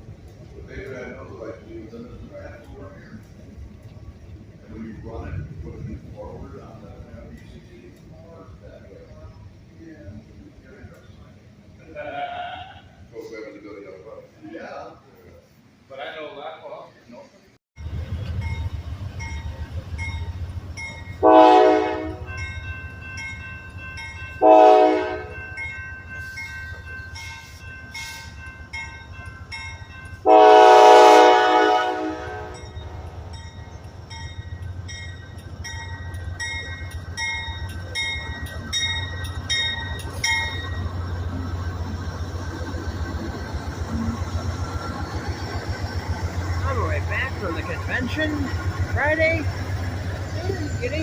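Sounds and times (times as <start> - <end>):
locomotive rumble: 0.0 - 14.3, 17.3 - 51.0
bell ringing: 18.2 - 30.7, 32.4 - 41.5
train horn blasts: 21.2 - 22.3, 24.4 - 25.4, 30.2 - 33.0.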